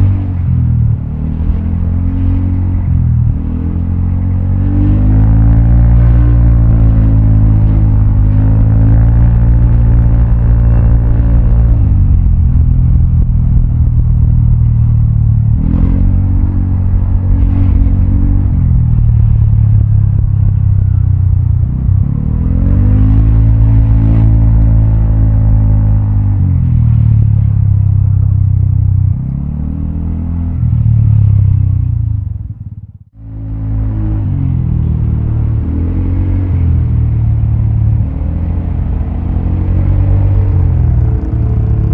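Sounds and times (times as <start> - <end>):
scooter engine accelerating: 33.6 - 41.9.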